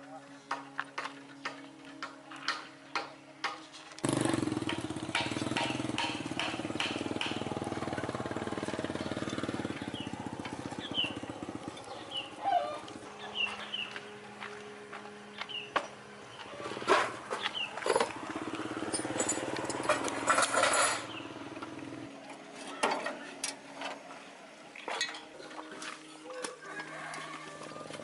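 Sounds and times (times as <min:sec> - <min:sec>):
engine running: 0:03.9 - 0:25.6
sharp knocks and clicks: 0:04.6 - 0:07.5.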